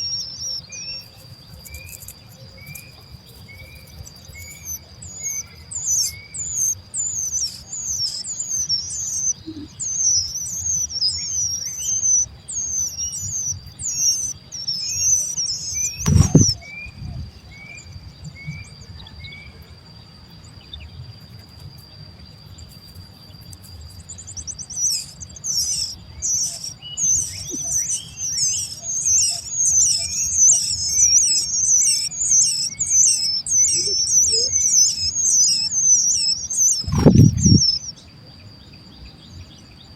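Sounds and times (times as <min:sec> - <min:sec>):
fledgling birds begging chirps: 0:00.0 - 0:39.9
steady high whine: 0:15.8 - 0:18.1, 0:29.9 - 0:38.0
thump: 0:16.0 - 0:16.6.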